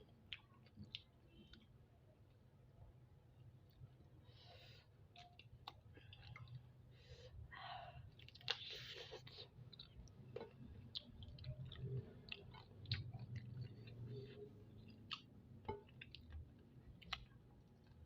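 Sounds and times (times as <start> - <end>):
person chewing: 0.0 - 1.7, 5.1 - 6.7, 8.1 - 18.0.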